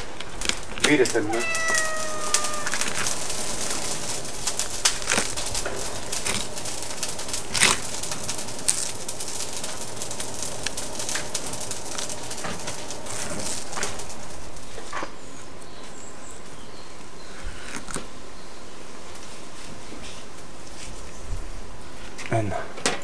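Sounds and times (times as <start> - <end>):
birds calling: 0.0 - 7.9, 11.4 - 19.1.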